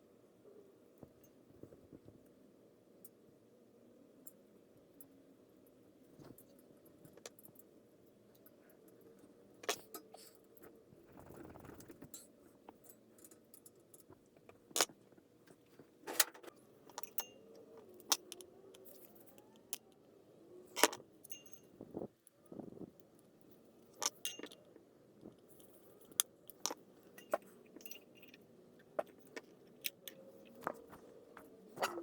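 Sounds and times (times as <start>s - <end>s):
metal parts and tools clinking: 16.1s - 19.8s, 20.8s - 21.8s, 24.0s - 24.7s, 25.5s - 32.0s.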